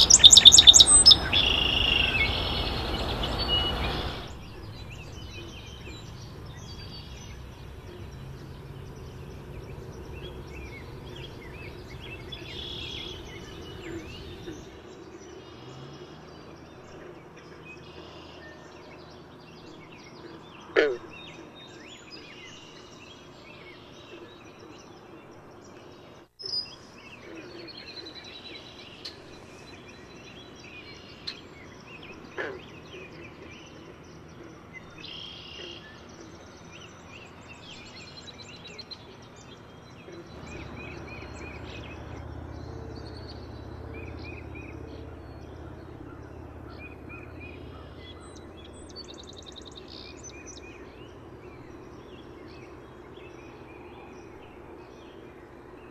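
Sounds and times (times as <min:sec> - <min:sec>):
songbirds chirping and singing: 0:00.0 - 0:55.9
low rumble: 0:00.8 - 0:14.9, 0:40.2 - 0:52.9.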